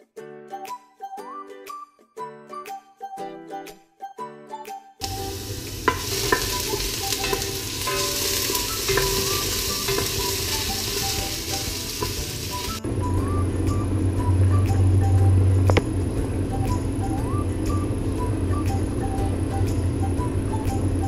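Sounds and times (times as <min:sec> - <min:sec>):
background music: 0:00.0 - 0:21.0
food sizzling in a pan: 0:05.0 - 0:12.8.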